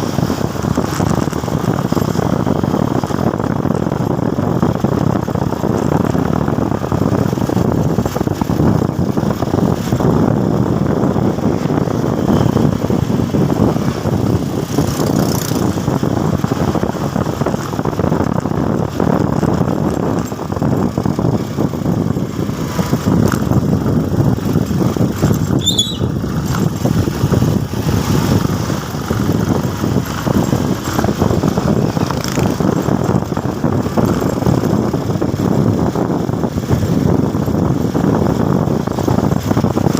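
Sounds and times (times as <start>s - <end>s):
motorcycle engine: 0.0s - 39.9s
steady rushing noise: 0.0s - 39.9s
brief high chirp: 25.6s - 26.1s.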